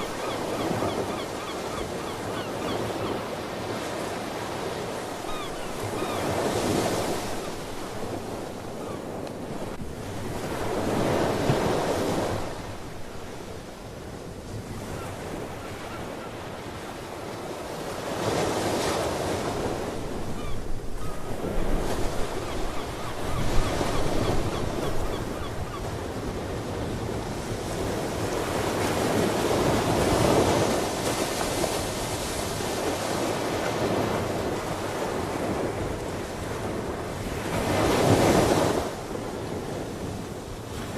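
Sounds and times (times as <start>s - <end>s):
waves washing up on shore: 26.0s - 40.9s.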